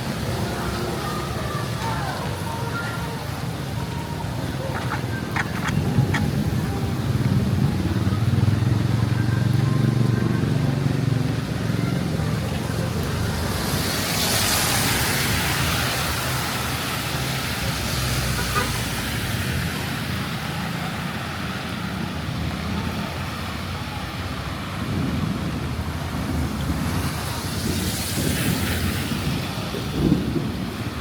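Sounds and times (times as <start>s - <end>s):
vehicle engine humming: 0.0s - 26.9s
tyres swishing on wet road: 0.0s - 31.0s
rain hiss: 10.5s - 31.0s.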